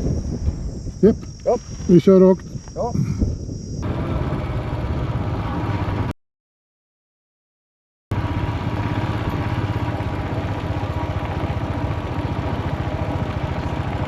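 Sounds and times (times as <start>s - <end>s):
motorcycle engine running: 3.7s - 6.1s, 8.1s - 14.0s.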